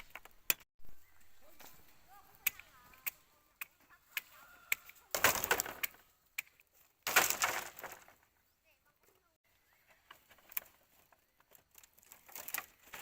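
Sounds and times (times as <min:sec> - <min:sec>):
bamboo being chopped: 0:02.4 - 0:07.8
bamboo splintering: 0:02.4 - 0:08.1.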